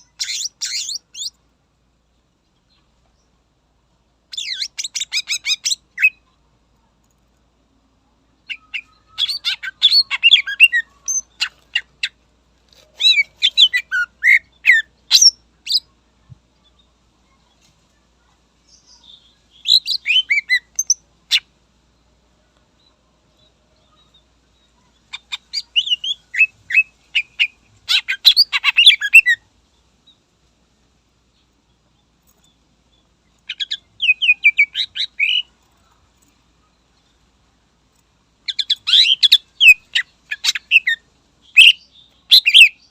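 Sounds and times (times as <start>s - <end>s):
bird singing chattering phrases: 0.0s - 1.4s, 4.3s - 6.2s, 8.4s - 12.2s, 13.0s - 15.9s, 24.0s - 29.4s, 33.4s - 36.0s, 38.5s - 42.9s.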